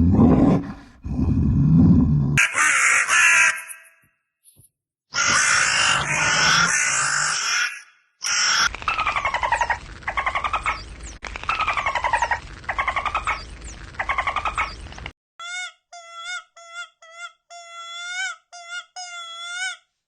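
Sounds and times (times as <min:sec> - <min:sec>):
loud harsh animal call: 0:02.4 - 0:03.9, 0:05.1 - 0:10.8
rapid pulsed animal calls: 0:05.2 - 0:15.0.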